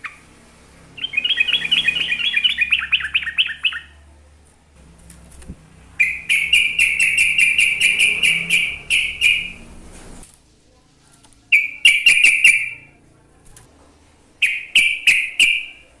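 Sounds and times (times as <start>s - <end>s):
bulbul singing: 0.0s - 4.1s, 5.8s - 10.2s, 11.5s - 13.0s, 14.4s - 16.0s.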